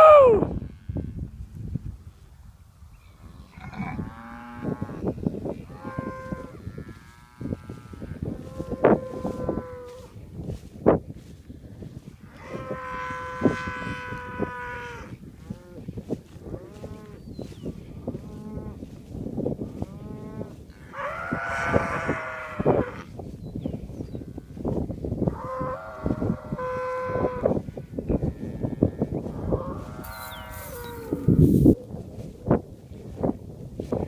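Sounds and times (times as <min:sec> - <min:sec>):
cows mooing: 0:00.6 - 0:01.1, 0:03.2 - 0:10.1, 0:12.3 - 0:15.9, 0:19.7 - 0:23.1, 0:25.3 - 0:31.8.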